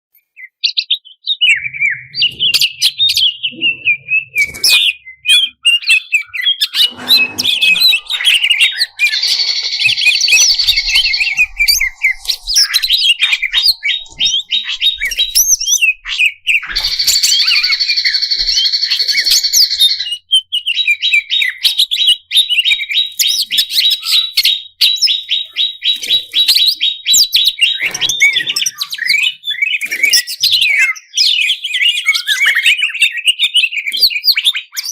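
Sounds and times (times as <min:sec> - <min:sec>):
bird singing chirps and trills: 0:00.2 - 0:34.9
harsh buzzy bird notes: 0:06.6 - 0:19.8.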